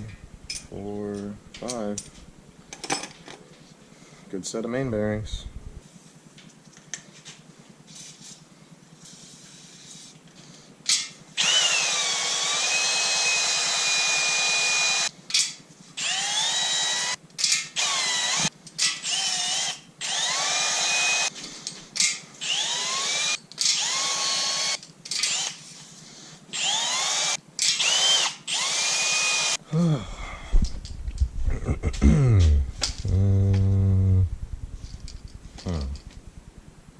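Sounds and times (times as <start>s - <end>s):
power tool whining: 11.4s - 15.1s, 16.0s - 17.2s, 17.8s - 21.3s, 22.4s - 25.6s, 26.5s - 29.6s.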